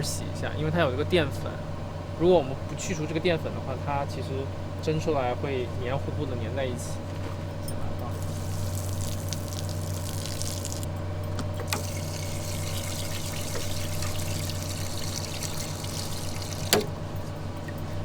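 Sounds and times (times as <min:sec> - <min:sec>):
steady low hum: 0:00.0 - 0:18.0
water pouring into a pot: 0:08.1 - 0:10.9, 0:11.6 - 0:16.9.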